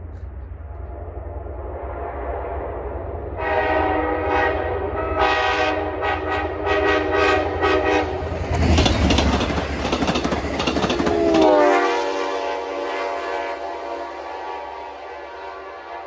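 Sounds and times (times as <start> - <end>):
train rushing past: 0.0 - 16.0
locomotive air horn blasts: 3.4 - 8.3, 11.1 - 16.0
wheels clattering on rails: 8.3 - 11.8.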